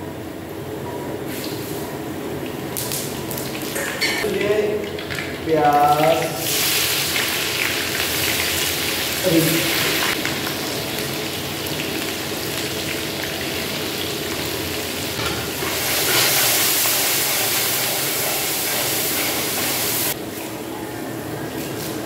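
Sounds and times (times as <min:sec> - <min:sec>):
onions sizzling in hot oil: 0:05.8 - 0:20.2.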